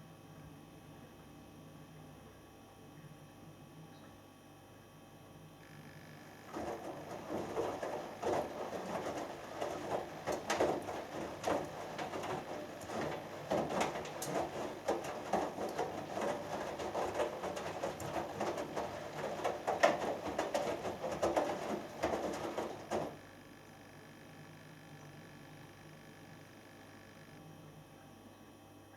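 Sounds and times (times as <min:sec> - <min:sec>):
washing machine drum tumbling laundry: 0:06.2 - 0:23.3.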